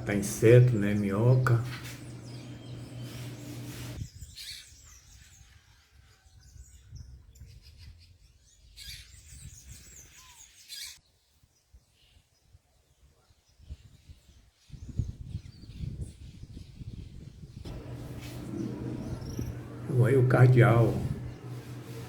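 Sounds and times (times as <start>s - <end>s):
steady low hum: 0.0s - 4.0s, 17.7s - 22.0s
bird chirps and calls: 0.9s - 5.6s, 17.7s - 21.8s.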